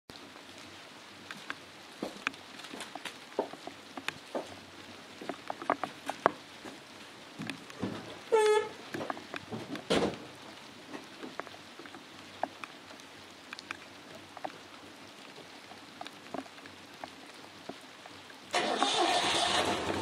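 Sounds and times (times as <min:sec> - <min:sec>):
faint steady hiss: 0:00.1 - 0:20.0
light ticks and clicks: 0:01.2 - 0:04.5, 0:05.2 - 0:07.8, 0:08.8 - 0:18.4
car engine starting and running: 0:18.5 - 0:20.0.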